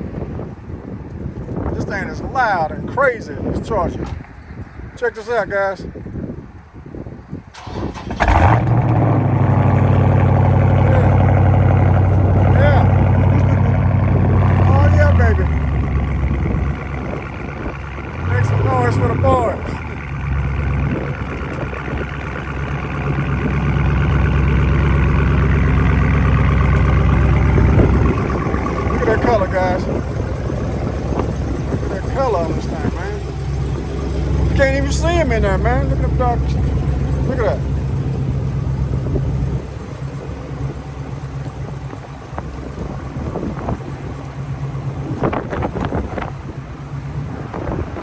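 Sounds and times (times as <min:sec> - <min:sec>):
car engine exhaust rumble: 0:06.0 - 0:48.0.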